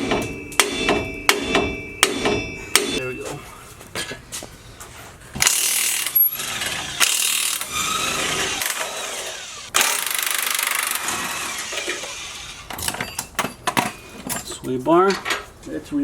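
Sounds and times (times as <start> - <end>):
power wrench rattling: 5.4 - 13.7.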